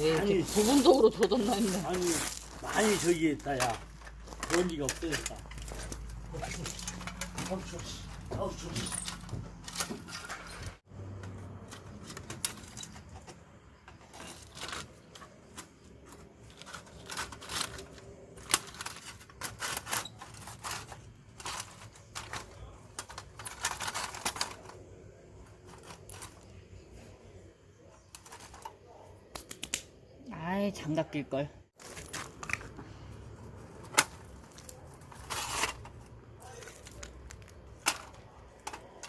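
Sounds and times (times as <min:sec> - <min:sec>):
firewood clicks and knocks: 0:00.0 - 0:26.9, 0:31.8 - 0:39.0.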